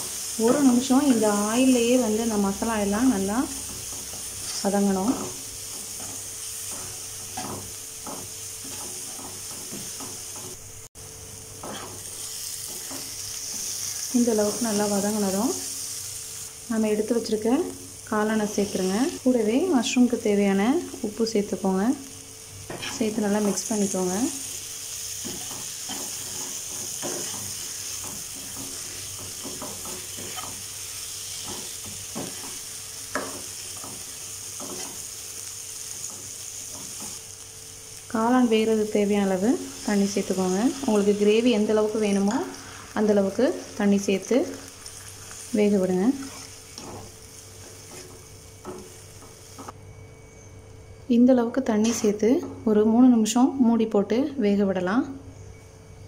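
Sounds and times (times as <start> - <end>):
masala sizzling in hot oil: 0.0 - 49.8
spatula scraping and knocking pan: 3.5 - 10.6, 11.6 - 14.7, 22.6 - 23.7, 25.1 - 35.2, 46.0 - 49.7.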